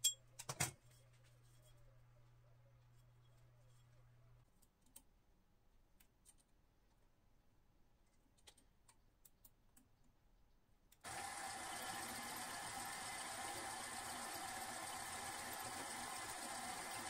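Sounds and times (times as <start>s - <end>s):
workshop machine whirring: 11.0s - 17.0s.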